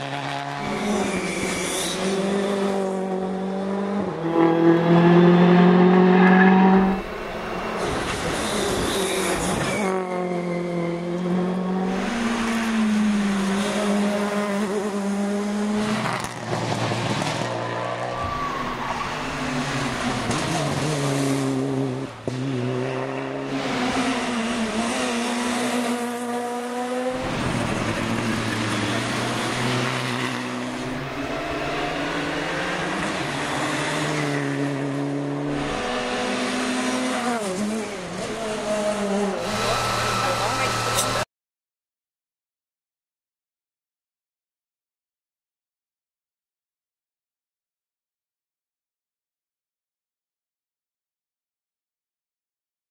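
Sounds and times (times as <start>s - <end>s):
rally car engines revving: 0.0s - 41.2s.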